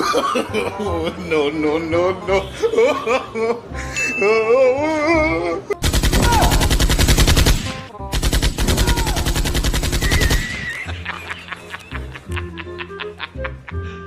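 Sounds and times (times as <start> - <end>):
automatic gunfire bursts: 5.8 - 10.6.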